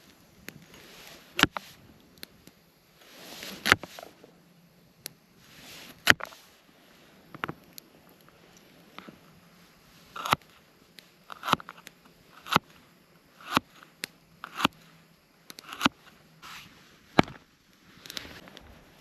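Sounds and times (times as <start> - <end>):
rustle: 0.0 - 19.0
dry wood snapping: 0.4 - 2.6, 6.0 - 6.4, 13.4 - 16.2.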